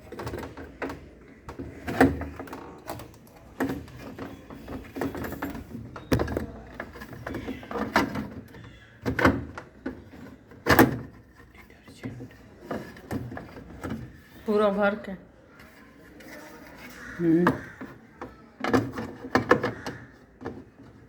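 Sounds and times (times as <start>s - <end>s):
quiet rattling: 0.0s - 14.8s
washing machine knocks and clacks: 18.6s - 20.7s.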